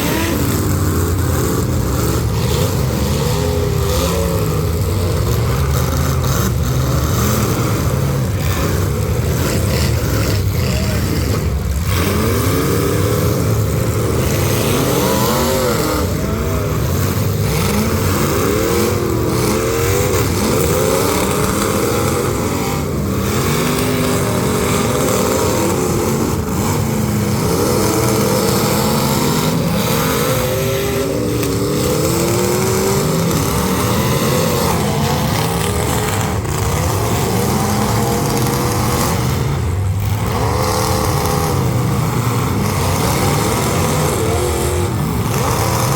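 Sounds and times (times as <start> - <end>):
car engines revving hard: 0.0 - 45.9.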